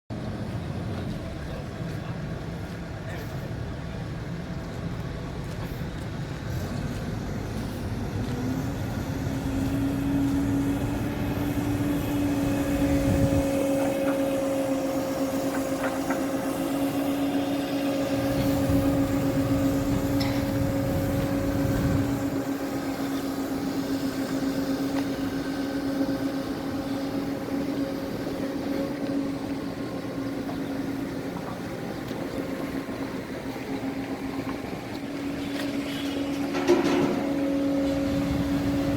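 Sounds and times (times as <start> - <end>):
heavy low rumble: 0.1 - 16.6
diesel engine running: 0.1 - 38.9
steady hum: 0.1 - 38.9.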